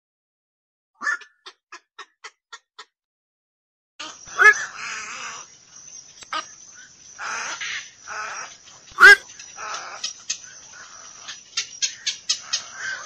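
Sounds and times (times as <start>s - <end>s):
heron harsh croaking calls: 4.0s - 5.5s, 7.2s - 10.1s, 10.7s - 13.0s.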